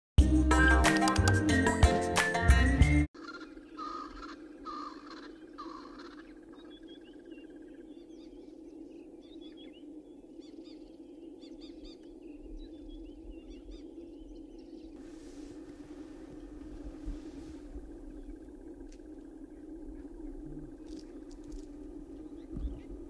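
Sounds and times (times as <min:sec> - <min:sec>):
bird honking calls: 0:03.2 - 0:07.2
small birds chirping: 0:03.2 - 0:23.0
steady low hum: 0:03.4 - 0:23.0.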